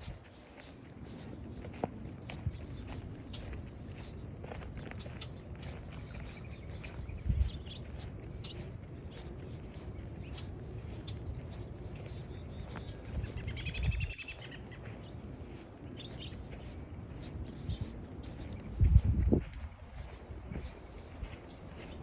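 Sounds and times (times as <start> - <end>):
footsteps on trail: 0.0 - 22.0
wind rumbling on microphone: 0.0 - 22.0
bird calling: 5.0 - 18.8.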